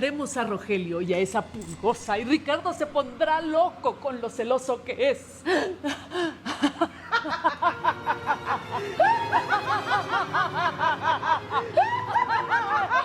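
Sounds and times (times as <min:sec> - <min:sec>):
person laughing: 0:05.4 - 0:13.0.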